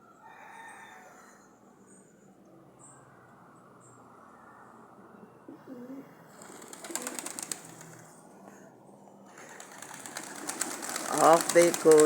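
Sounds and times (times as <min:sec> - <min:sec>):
low cooing call: 0:05.5 - 0:07.6
flock wingbeats: 0:06.4 - 0:08.0, 0:09.3 - 0:12.0.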